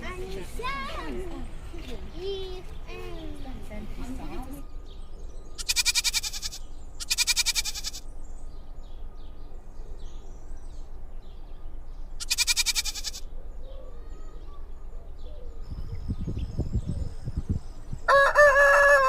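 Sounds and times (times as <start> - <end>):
goat bleating: 5.6 - 8.1, 12.2 - 13.3.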